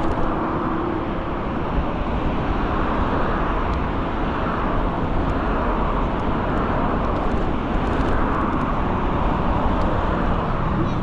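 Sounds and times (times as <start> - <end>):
electric scooter road noise: 0.0 - 11.0
wind rushing on microphone: 0.0 - 11.0.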